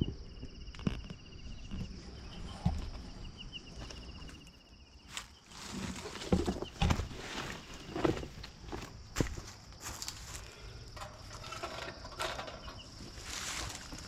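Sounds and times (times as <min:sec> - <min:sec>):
insects buzzing and chirping: 0:00.0 - 0:14.0
footsteps through vegetation: 0:05.0 - 0:10.6, 0:12.9 - 0:14.0
dull thumps: 0:05.7 - 0:09.5.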